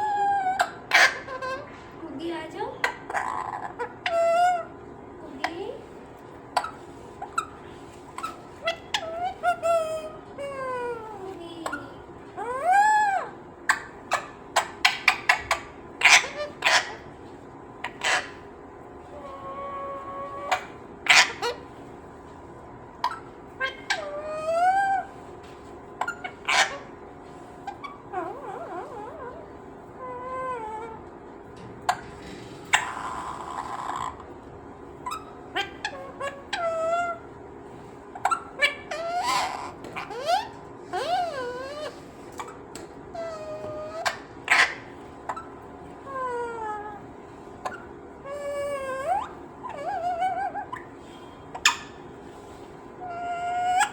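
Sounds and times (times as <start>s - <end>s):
parrot calling: 0.0s - 53.9s
parrot squawks and whistles: 38.1s - 53.9s.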